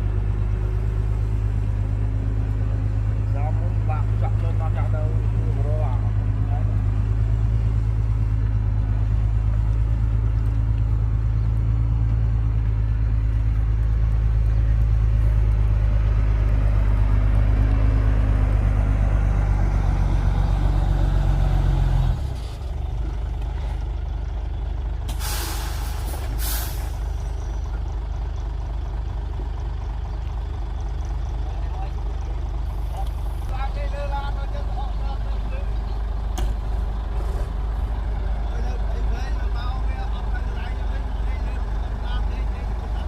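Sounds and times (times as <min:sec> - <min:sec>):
heavy diesel engine running: 0:00.0 - 0:43.0
air hiss: 0:25.1 - 0:27.0.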